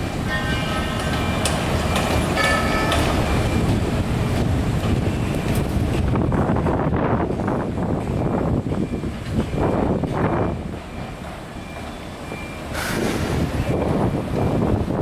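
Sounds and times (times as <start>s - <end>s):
sharp metallic knocks: 0.5s - 3.5s.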